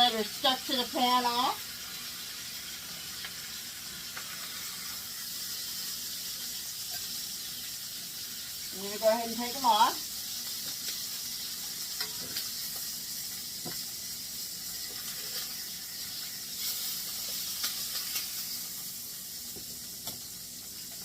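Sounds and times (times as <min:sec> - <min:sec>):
chicken sizzling in hot oil: 0:00.0 - 0:21.0
metal tongs clicking on pan: 0:12.0 - 0:12.5.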